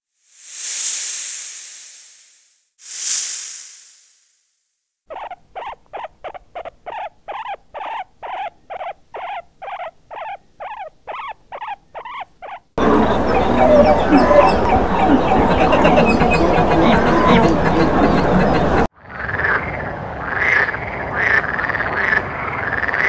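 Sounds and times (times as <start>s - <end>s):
piglets squealing: 5.1s - 16.3s
gulls calling: 5.1s - 18.9s.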